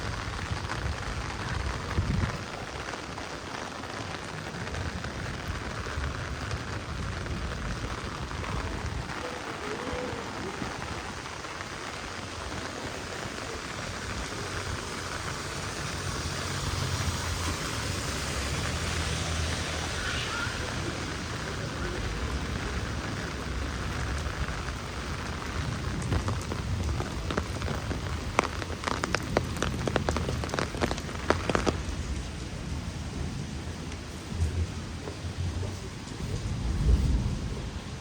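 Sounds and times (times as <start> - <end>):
heavy rain on street: 0.0 - 38.0
low rumble: 31.7 - 38.0.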